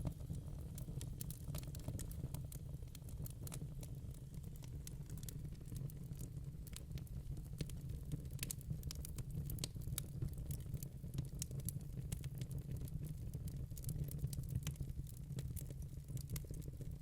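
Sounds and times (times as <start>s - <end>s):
low rumble of flames: 0.0s - 17.0s
logs crackling and popping: 2.8s - 14.9s.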